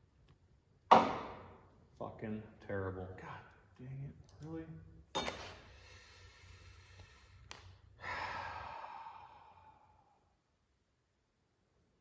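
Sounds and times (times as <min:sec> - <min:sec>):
man sighing: 0:08.0 - 0:09.9.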